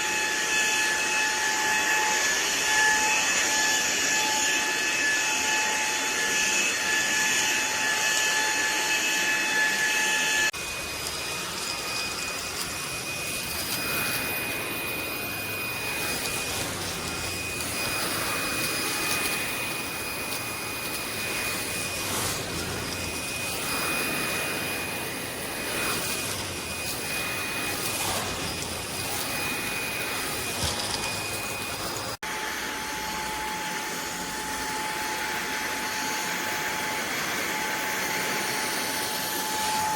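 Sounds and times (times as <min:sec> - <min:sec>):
stick vacuum running: 0:00.0 - 0:39.9.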